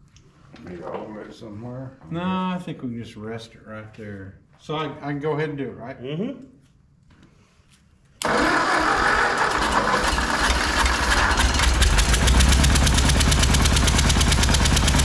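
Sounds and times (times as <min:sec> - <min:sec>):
engine cranking on starter: 0:08.2 - 0:15.0
tractor engine running: 0:08.2 - 0:15.0.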